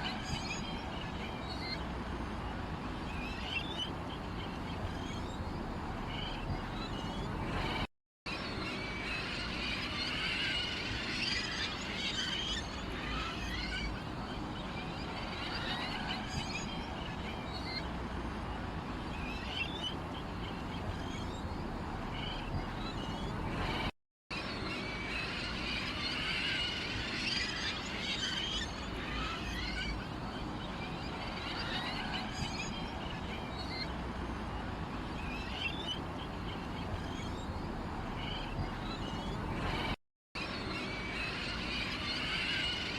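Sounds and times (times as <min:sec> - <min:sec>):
small birds chirping: 0:00.0 - 0:07.9, 0:11.1 - 0:23.9, 0:27.3 - 0:40.0.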